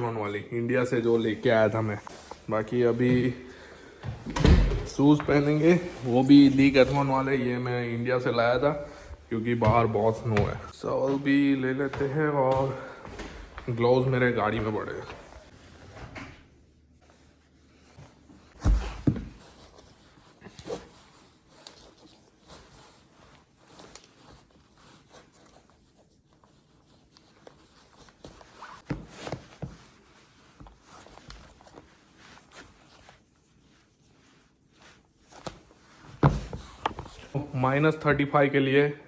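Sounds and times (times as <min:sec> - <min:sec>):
clothing rustling: 0:01.0 - 0:38.3
footsteps: 0:01.1 - 0:07.6, 0:08.2 - 0:15.5
heavy thumps: 0:08.6 - 0:10.8.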